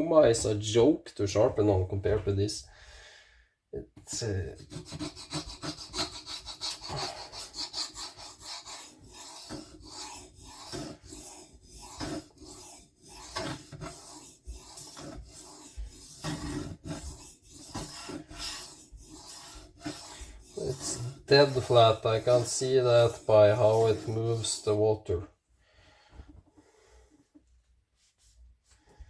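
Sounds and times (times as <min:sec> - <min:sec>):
knife scraping on sharpening plate: 0:04.7 - 0:21.8.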